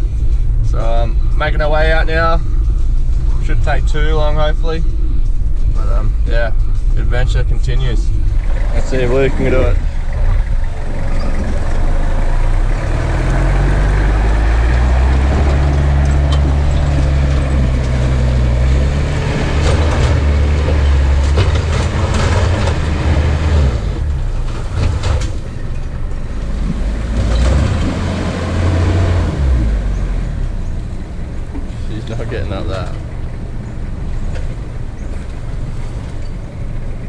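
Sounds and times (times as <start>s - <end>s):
vehicle engine straining: 0.0s - 37.0s
vehicle knocks and clunks: 14.8s - 37.0s.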